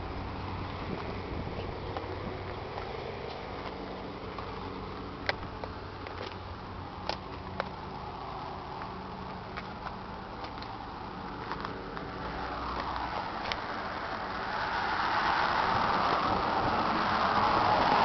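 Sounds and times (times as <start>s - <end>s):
vehicle hum: 0.0s - 18.0s
rushing noise: 7.8s - 18.0s.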